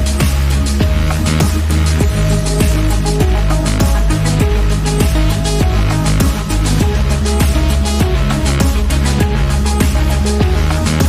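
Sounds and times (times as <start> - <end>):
deep kick drum: 0.0 - 11.0
hi-hats: 0.0 - 11.0
sustained bass line: 0.0 - 11.0.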